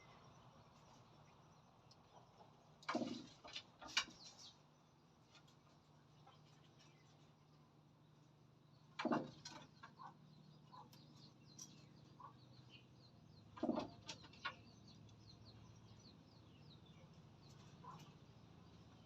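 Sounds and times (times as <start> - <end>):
high chirps of small birds: 8.0 - 19.0
chickens clucking: 9.0 - 15.0, 17.2 - 18.3.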